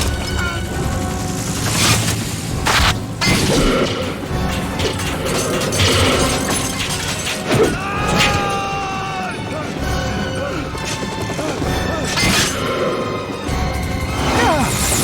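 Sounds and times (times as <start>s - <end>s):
crashing metallic impacts: 0.0s - 8.6s
dramatic film score: 0.0s - 15.0s.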